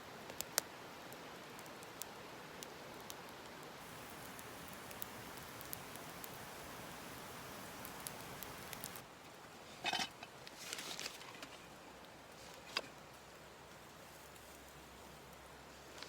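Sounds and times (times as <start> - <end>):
small crackles: 0.1 - 9.0, 9.8 - 16.0
scraping rustle: 9.7 - 11.7.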